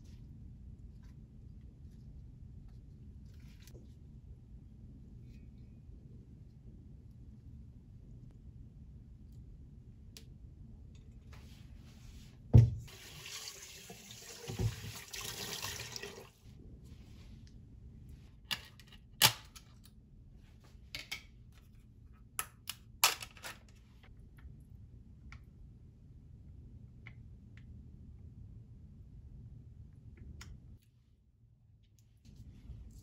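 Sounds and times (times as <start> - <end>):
kitchen faucet running: 12.9 - 16.4.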